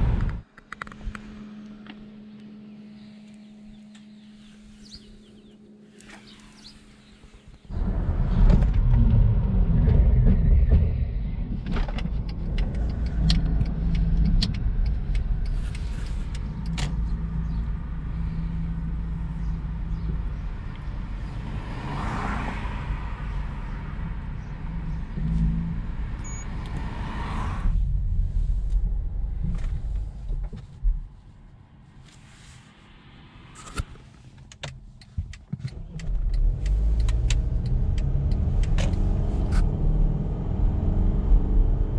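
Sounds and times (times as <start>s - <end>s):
diesel engine running: 0.0s - 27.0s
scattered clicks: 11.7s - 17.0s, 33.6s - 39.7s.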